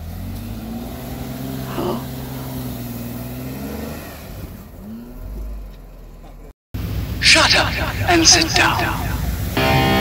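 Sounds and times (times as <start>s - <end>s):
engine driving through snow: 0.0s - 6.5s.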